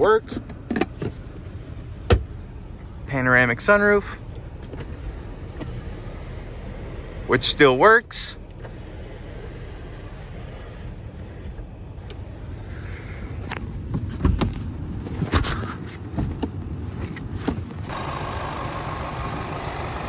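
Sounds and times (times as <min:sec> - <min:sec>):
car engine idling: 0:00.0 - 0:14.9, 0:17.6 - 0:20.0
brighter running noise: 0:17.9 - 0:20.0.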